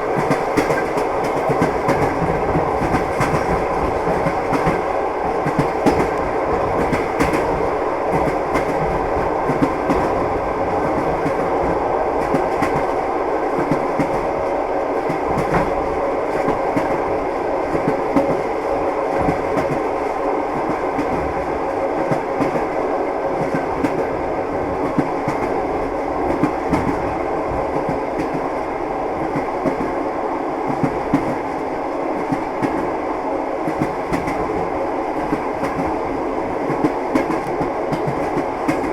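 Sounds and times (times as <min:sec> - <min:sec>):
train wheels clattering on rails: 0:00.0 - 0:28.6, 0:29.2 - 0:30.0, 0:30.6 - 0:31.6, 0:32.2 - 0:33.0, 0:33.6 - 0:38.9.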